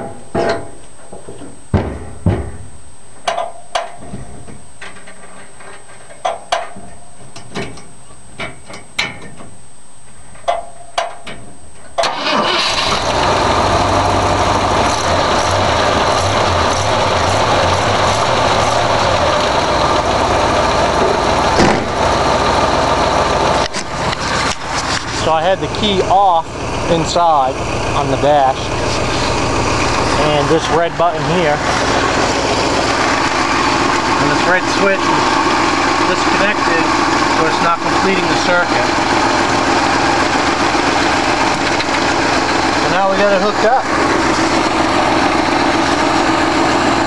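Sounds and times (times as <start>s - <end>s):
car engine starting and running: 12.0s - 47.0s.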